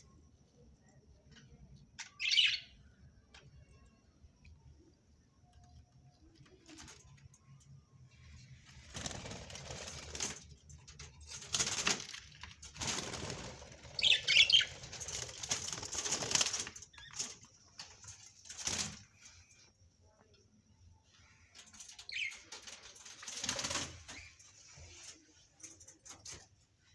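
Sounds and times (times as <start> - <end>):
parrot high chirping: 2.0 - 2.8, 14.0 - 14.7
parrot wings flapping: 8.8 - 10.5, 11.5 - 17.1.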